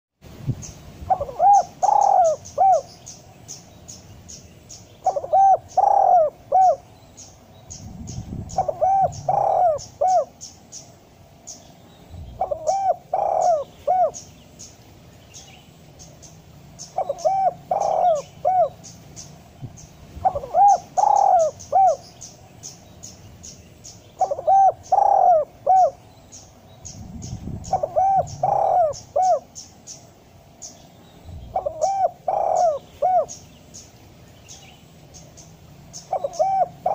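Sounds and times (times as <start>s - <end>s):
dove cooing: 1.1s - 3.0s, 5.0s - 6.9s, 8.4s - 10.4s, 12.3s - 14.3s, 16.8s - 18.9s, 20.2s - 22.2s, 24.2s - 26.0s, 27.2s - 29.6s, 31.5s - 33.4s, 36.0s - 36.9s.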